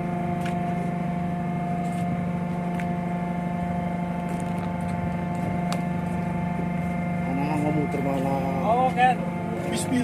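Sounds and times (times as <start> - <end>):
ship machinery humming: 0.0 - 10.0.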